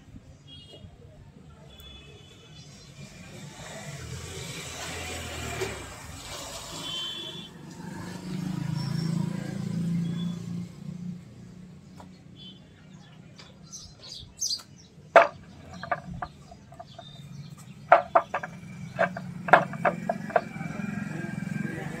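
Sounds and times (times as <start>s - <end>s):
birds chirping: 13.4s - 21.6s.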